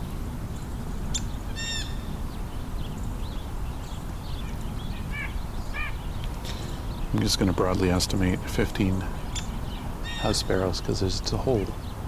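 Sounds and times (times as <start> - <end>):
steady low rumble: 0.0 - 11.9
faint bird chirps: 0.0 - 12.0
harsh bird call: 1.1 - 2.2, 4.3 - 12.0.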